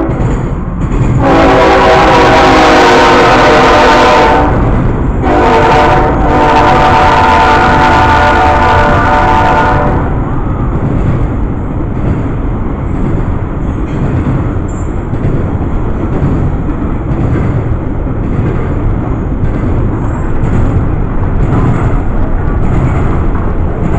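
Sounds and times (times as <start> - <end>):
freight train rolling on rails: 0.0 - 23.9
locomotive horn chord: 1.2 - 10.2.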